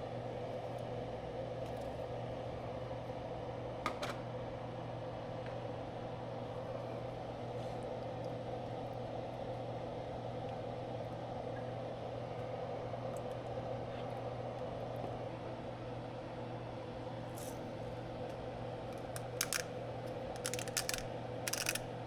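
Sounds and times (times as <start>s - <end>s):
fan or motor humming: 0.0s - 22.0s.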